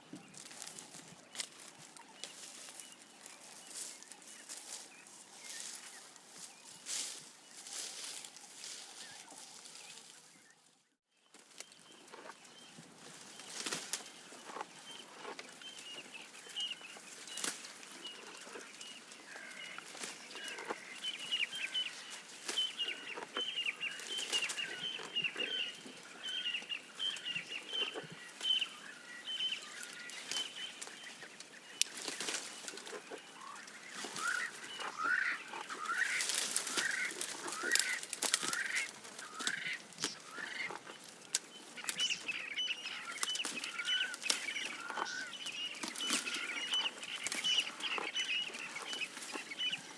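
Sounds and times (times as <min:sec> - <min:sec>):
birds chirping: 0:00.0 - 0:49.9
leaves being stripped and chewed: 0:35.5 - 0:42.4.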